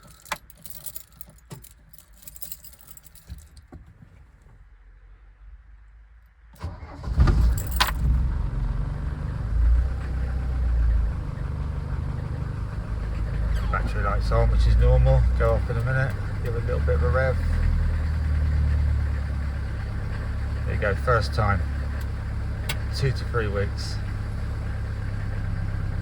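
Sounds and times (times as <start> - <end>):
diesel engine running: 6.6 - 26.0.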